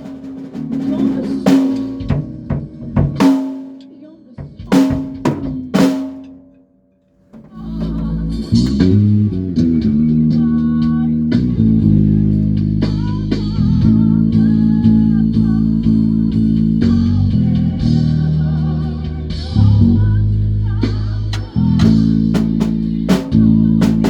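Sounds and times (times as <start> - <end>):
band music: 0.0 - 6.4
electric bass guitar low notes: 7.2 - 24.0.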